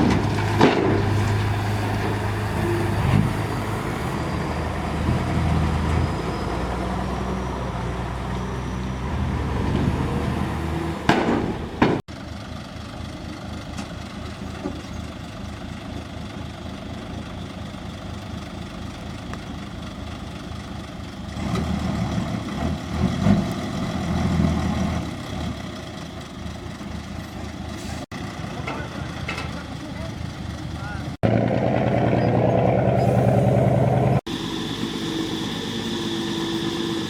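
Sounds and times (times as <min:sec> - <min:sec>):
sharp bangs: 0:00.0 - 0:03.7, 0:10.8 - 0:12.0
diesel engine running: 0:00.0 - 0:37.0.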